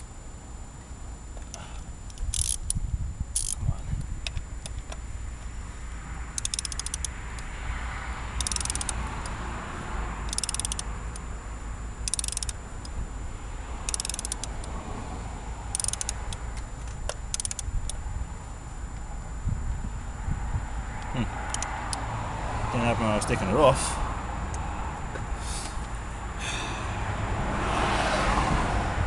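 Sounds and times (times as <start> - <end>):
ratchet wrench clicking: 1.4 - 5.0, 6.3 - 7.5, 8.3 - 9.4, 10.2 - 11.3, 12.0 - 13.0, 13.8 - 14.8, 15.7 - 18.0, 21.0 - 22.1.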